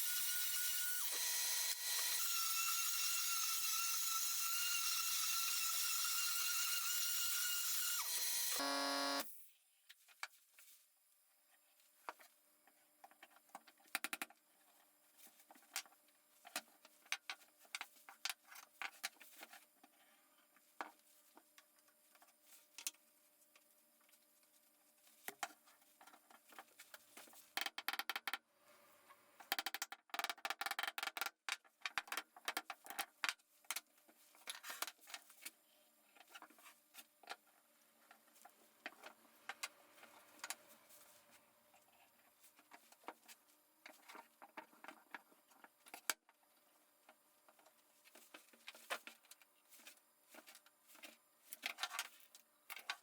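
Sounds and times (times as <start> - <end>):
wooden parts and tools clicking: 27.6 - 28.4.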